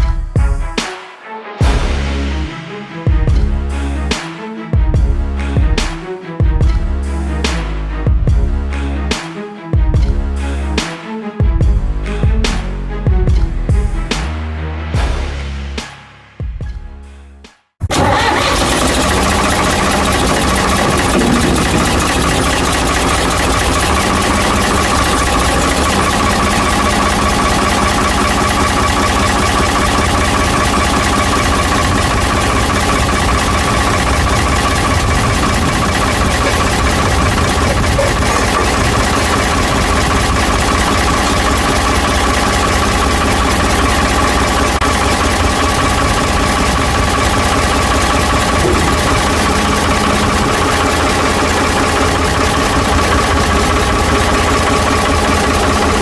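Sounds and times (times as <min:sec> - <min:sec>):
diesel engine idling: 0:17.9 - 0:56.0.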